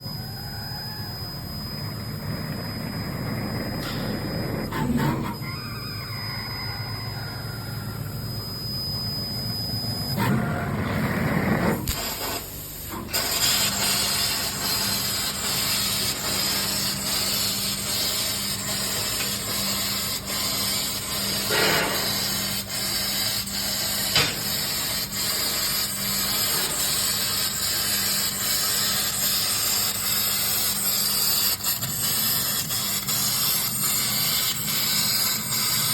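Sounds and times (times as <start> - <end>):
laser cutting hiss: 11.8 - 35.9.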